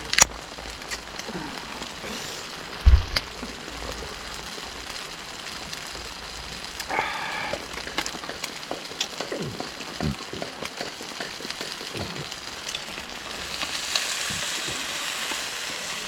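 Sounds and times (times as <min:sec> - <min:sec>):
steady rain falling: 0:00.0 - 0:16.0
wood fire crackling: 0:00.0 - 0:16.0
low thump: 0:02.8 - 0:03.3.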